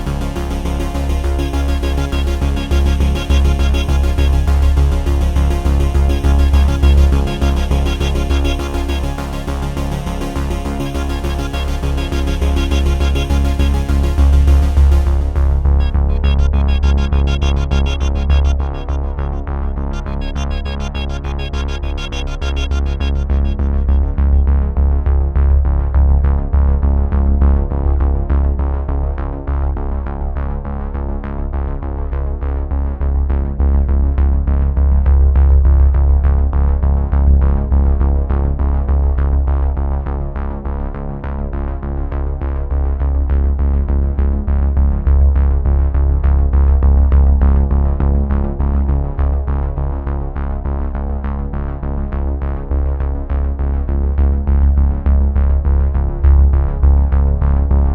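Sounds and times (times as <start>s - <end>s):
electronic music with heavy bass: 0.0s - 28.3s, 53.5s - 57.9s.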